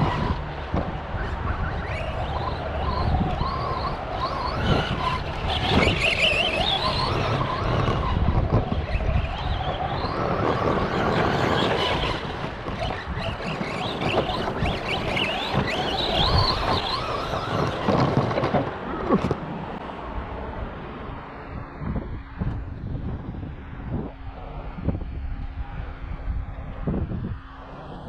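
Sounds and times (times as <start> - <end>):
electric motor whine: 0.0 - 19.8
toy truck tyres and drivetrain: 0.0 - 28.0.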